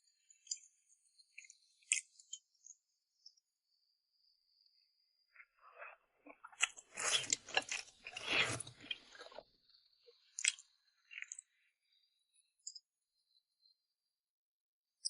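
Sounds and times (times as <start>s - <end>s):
chewing noodles: 6.2s - 9.4s, 10.4s - 11.4s.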